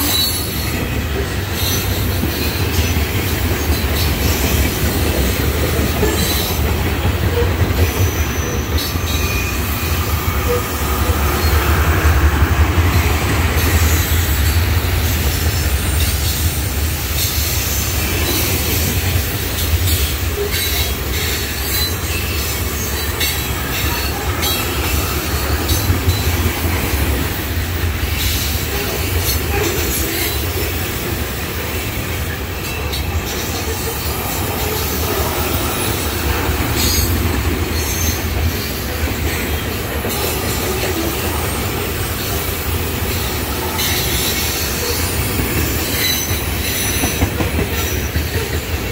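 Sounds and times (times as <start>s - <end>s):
freight train rumbling past: 0.0s - 48.9s
high wheel squeals: 7.2s - 12.1s, 32.6s - 39.0s.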